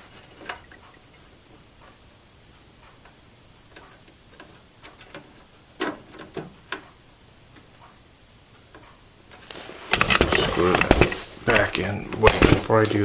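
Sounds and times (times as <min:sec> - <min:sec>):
computer hardware clicks and knocks: 0:09.9 - 0:12.9.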